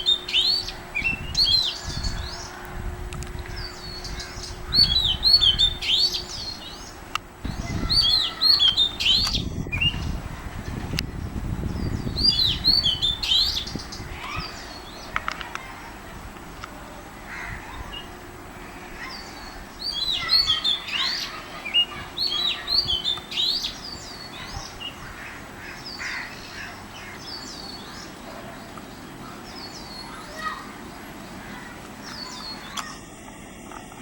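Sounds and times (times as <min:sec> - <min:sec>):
magpie-robin singing: 0:00.0 - 0:02.6, 0:03.4 - 0:10.2, 0:11.1 - 0:15.3, 0:17.7 - 0:31.4.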